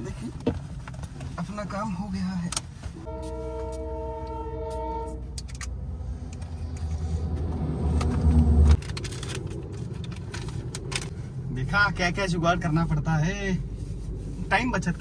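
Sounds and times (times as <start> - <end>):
passing train rumble: 3.0 - 11.8
train horn chord: 3.1 - 5.4.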